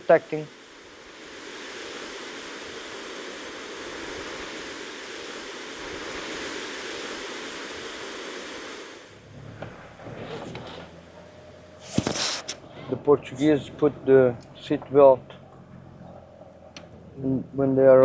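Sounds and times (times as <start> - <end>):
ocean surf: 0.0 - 9.2
low hum: 9.1 - 18.0.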